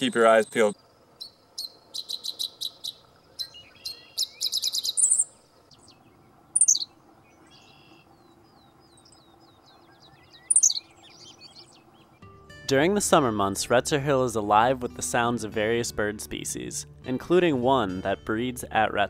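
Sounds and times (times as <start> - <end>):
songbirds singing and calling: 0.0 - 12.2.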